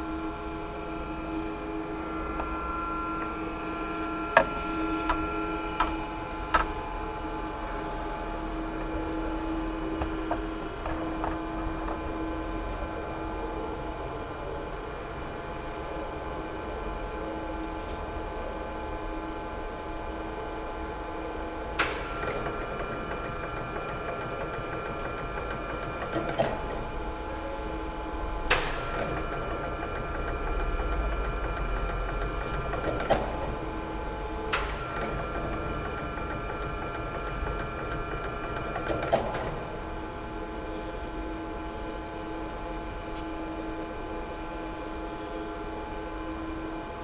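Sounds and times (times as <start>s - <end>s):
high-pitched machine whine: 0.0s - 47.0s
machine hum: 0.0s - 47.0s
sharp machine knock: 28.5s - 33.6s.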